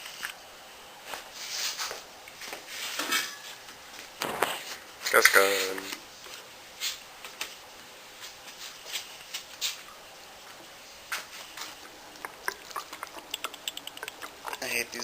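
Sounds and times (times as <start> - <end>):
liquid pouring: 11.7 - 14.9.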